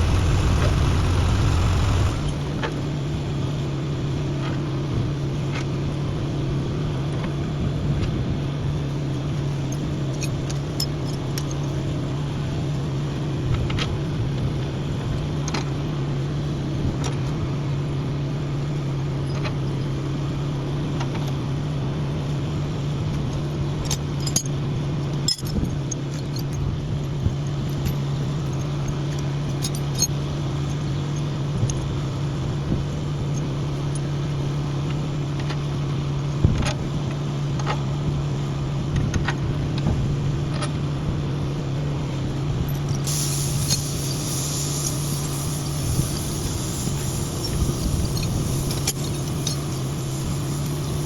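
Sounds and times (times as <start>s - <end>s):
engine humming: 0.0s - 4.3s.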